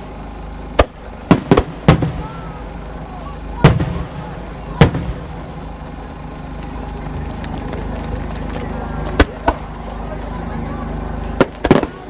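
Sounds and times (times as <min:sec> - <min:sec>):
low background rumble: 0:00.0 - 0:12.0
firework shell bangs: 0:00.8 - 0:02.5.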